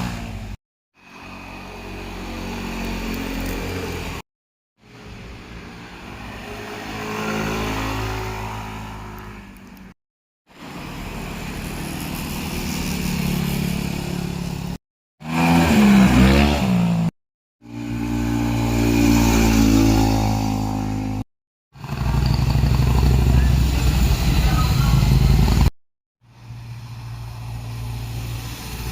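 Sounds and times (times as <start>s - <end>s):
motorcycles revving past: 0.0s - 4.2s, 5.6s - 9.5s, 10.6s - 17.1s, 17.7s - 21.2s, 21.8s - 25.7s.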